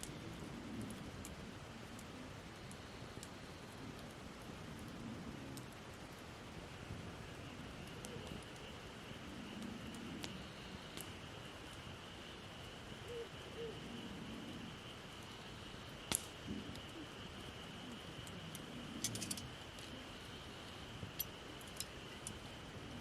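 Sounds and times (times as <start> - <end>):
campfire crackling: 0.0 - 23.0
sharp pops of fire: 9.6 - 11.8, 15.2 - 17.6.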